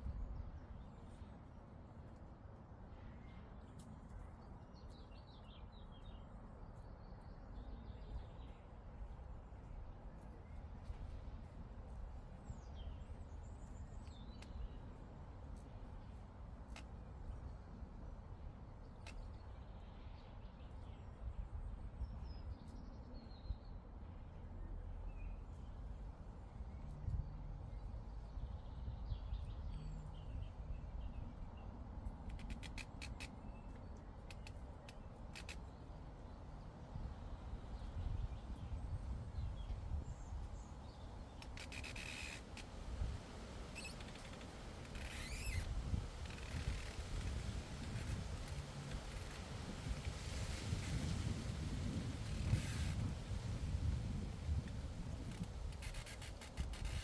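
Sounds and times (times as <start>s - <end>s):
wind rumble on microphone: 0.0s - 2.2s, 7.1s - 57.0s
small bird chirping: 43.7s - 45.7s.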